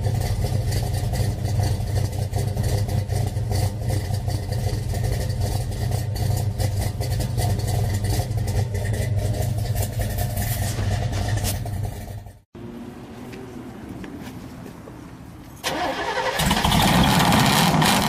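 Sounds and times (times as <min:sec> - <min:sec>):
car engine rumbling: 0:00.0 - 0:18.0.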